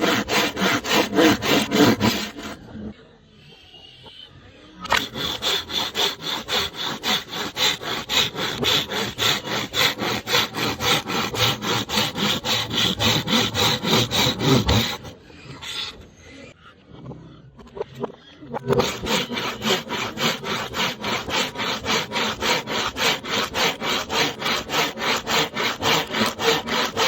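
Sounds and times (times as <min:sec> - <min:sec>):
bamboo being sawn by hand: 0:00.0 - 0:02.6, 0:04.9 - 0:15.2, 0:18.7 - 0:27.0.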